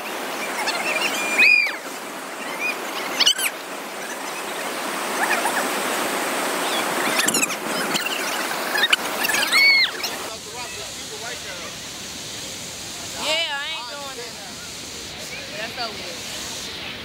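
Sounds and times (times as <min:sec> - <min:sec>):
rushing water: 0:00.0 - 0:17.0
high-pitched cries: 0:00.5 - 0:01.8, 0:02.4 - 0:04.3, 0:07.0 - 0:10.3.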